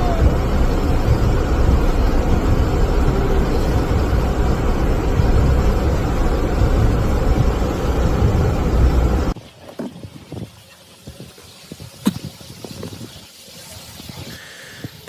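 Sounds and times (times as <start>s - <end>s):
loud low rumbling: 0.0s - 9.4s.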